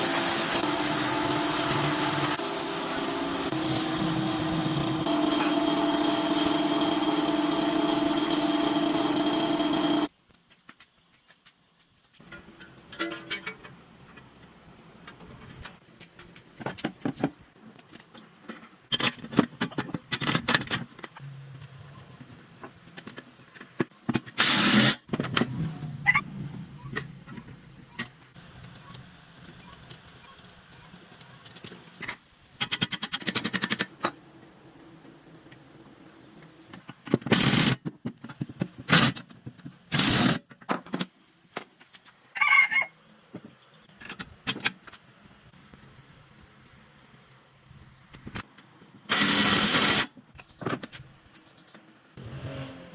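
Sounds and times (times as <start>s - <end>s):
short noisy bursts: 49.1s - 50.1s.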